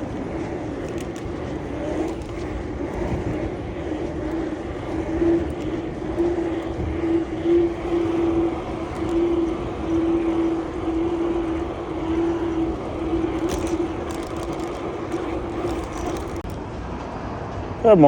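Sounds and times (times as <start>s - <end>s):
mid-pitched hum: 0.0s - 16.8s
road and wind noise: 0.0s - 18.0s.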